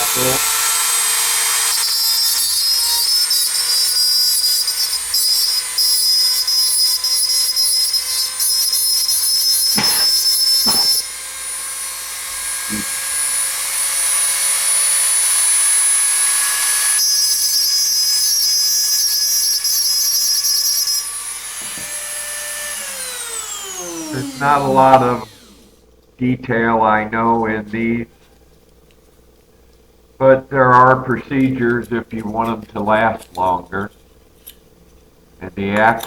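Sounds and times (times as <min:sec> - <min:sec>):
rotary tool grinding metal: 0:00.0 - 0:25.8
short knocks: 0:09.8 - 0:11.0.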